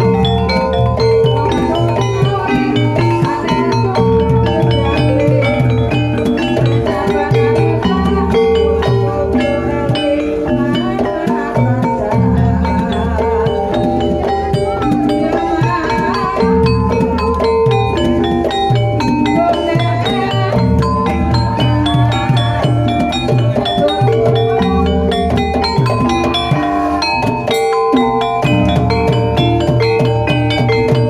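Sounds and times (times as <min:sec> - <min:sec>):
drum strokes: 0:00.0 - 0:31.0
metallophone melody: 0:00.0 - 0:31.0.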